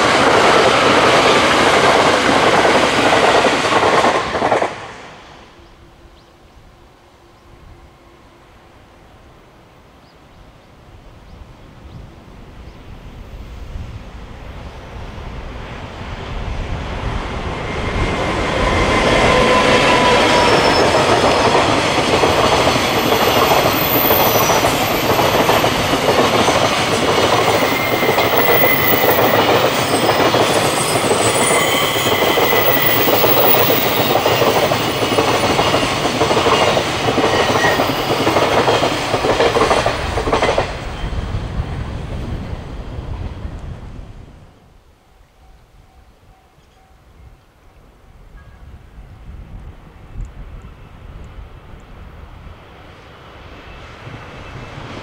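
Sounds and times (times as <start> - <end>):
freight train passing: 0.0 - 55.0
wheel squeals: 18.6 - 21.1, 27.4 - 36.0.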